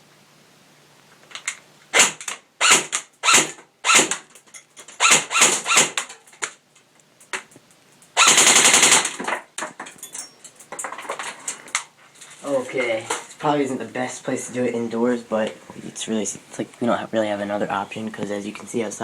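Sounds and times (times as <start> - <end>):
airsoft rifle full-auto burst: 1.9 - 4.2, 5.0 - 6.0, 8.2 - 9.2.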